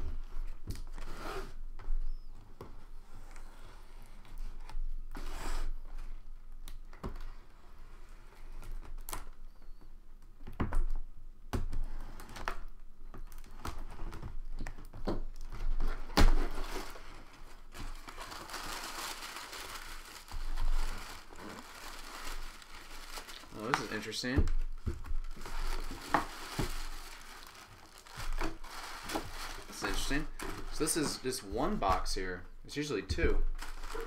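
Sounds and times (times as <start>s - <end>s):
plastic packaging crinkling: 15.5s - 32.3s, 33.4s - 34.0s.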